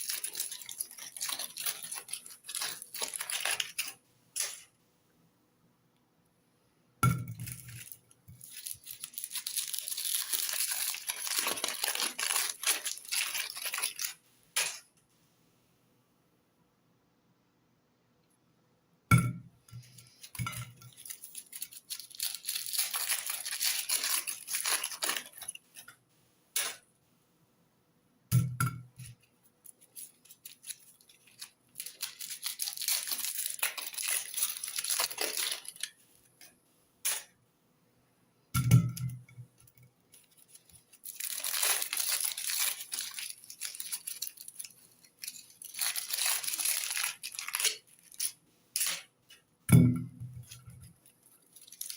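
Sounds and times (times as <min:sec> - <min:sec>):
dense crinkling crackle: 0:00.0 - 0:04.7, 0:07.3 - 0:14.8, 0:19.8 - 0:26.0, 0:29.0 - 0:37.3, 0:39.5 - 0:49.5, 0:50.3 - 0:51.9.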